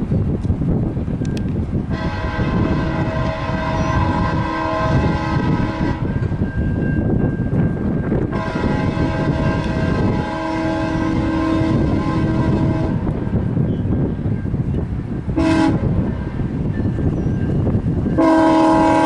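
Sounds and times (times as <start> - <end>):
train rumble: 0.0 - 19.0
locomotive air horn: 1.9 - 6.3, 8.3 - 13.2, 15.4 - 16.5, 18.1 - 19.0.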